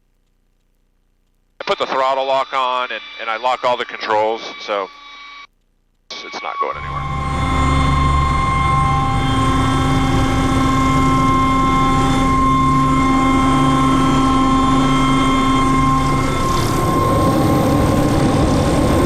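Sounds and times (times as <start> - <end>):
helicopter turbine idling: 6.8 - 19.0.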